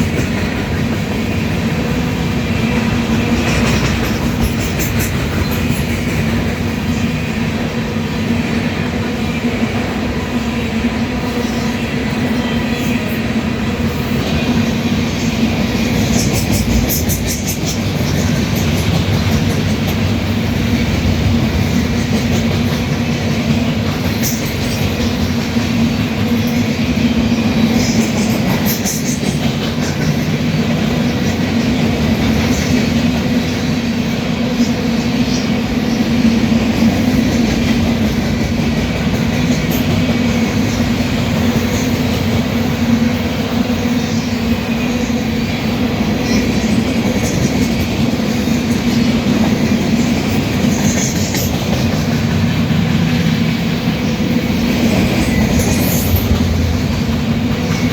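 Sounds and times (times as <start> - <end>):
wheels clicking over rail joints: 0.0 - 7.0
freight train rumbling past: 0.0 - 57.9.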